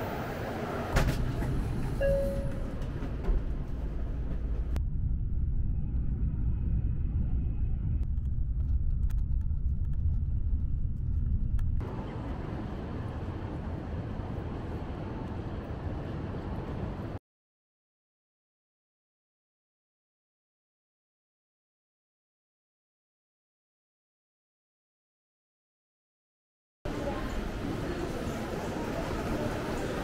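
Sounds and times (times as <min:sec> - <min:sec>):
train rushing past platform: 0:00.0 - 0:04.8
city ambience: 0:00.0 - 0:17.2, 0:26.9 - 0:30.0
rumble inside moving train car: 0:00.0 - 0:17.2, 0:26.9 - 0:30.0.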